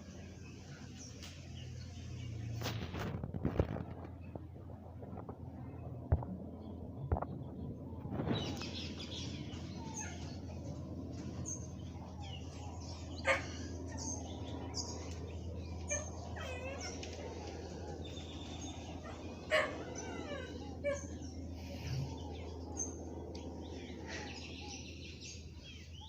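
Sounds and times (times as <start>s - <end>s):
small birds chirping: 0.0s - 4.5s, 5.2s - 26.0s
steady low hum: 0.0s - 26.0s.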